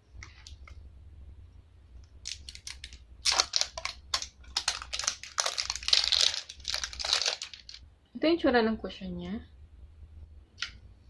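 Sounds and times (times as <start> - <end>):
packaging crinkling: 2.2 - 7.8.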